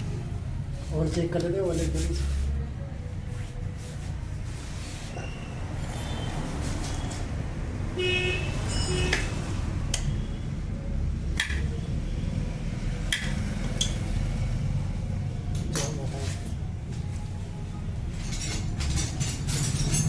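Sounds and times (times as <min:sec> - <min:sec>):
metallic ring: 0:08.6 - 0:09.2
metal tools clinking: 0:18.1 - 0:20.0.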